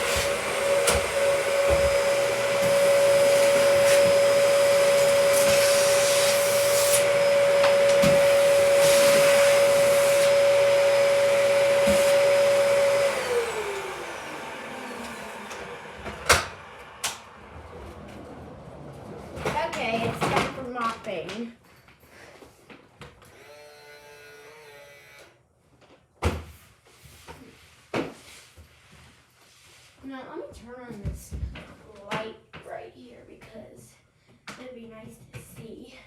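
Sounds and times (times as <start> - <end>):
vacuum cleaner whining: 0.0 - 21.0, 23.2 - 25.3.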